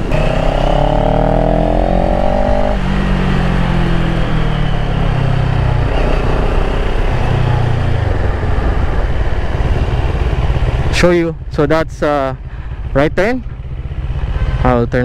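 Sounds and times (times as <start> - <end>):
motorcycle engine pulling hard: 0.0 - 11.2
wind rushing over microphone: 5.7 - 11.0.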